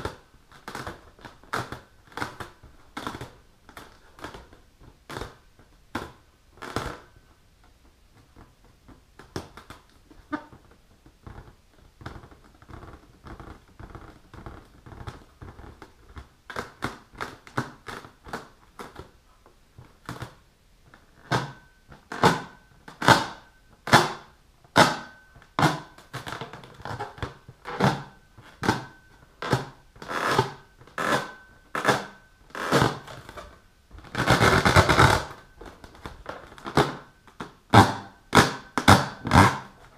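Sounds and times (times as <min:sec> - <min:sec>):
fingernails scratching a balloon: 0:34.0 - 0:35.4.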